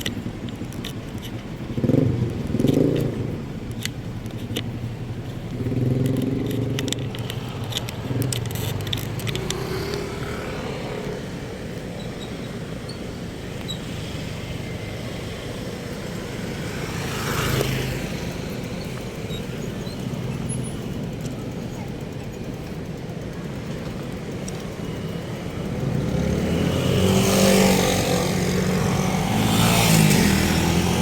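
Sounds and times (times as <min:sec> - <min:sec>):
vehicle engines running: 0:00.0 - 0:31.0
clicks and rattles: 0:02.3 - 0:10.1
vehicle passing close: 0:24.9 - 0:31.0.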